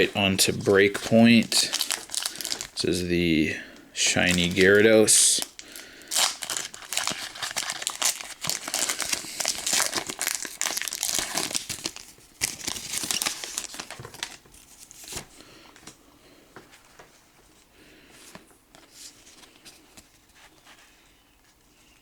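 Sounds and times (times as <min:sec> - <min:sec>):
foil wrapper crinkling and tearing: 0:00.0 - 0:03.0, 0:04.0 - 0:15.3.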